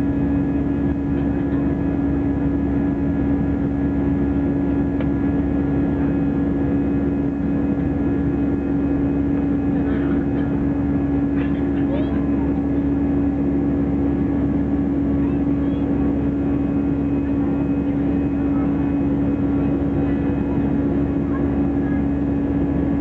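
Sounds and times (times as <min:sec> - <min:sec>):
airliner engine drone in cabin: 0:00.0 - 0:23.0.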